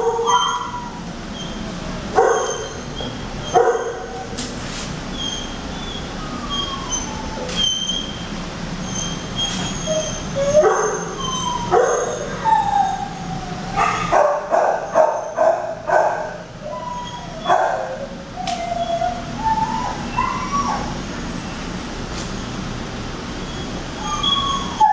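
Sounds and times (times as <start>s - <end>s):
dogs barking and yipping: 0.0s - 4.4s, 5.0s - 8.2s, 8.8s - 21.3s, 23.4s - 24.9s
dogs whining: 0.0s - 4.4s, 5.0s - 21.8s, 23.4s - 24.9s.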